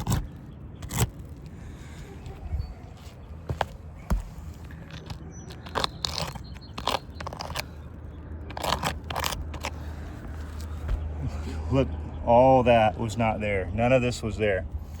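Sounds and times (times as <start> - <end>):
scraping on roof shingles: 0.0 - 2.4, 3.0 - 7.8, 8.5 - 11.0.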